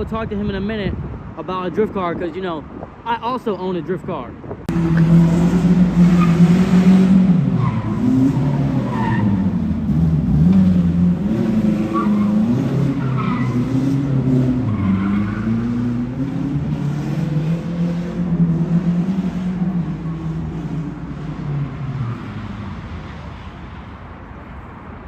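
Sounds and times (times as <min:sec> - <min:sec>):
car engine revving: 0:04.7 - 0:23.2
tires squealing: 0:04.7 - 0:23.6.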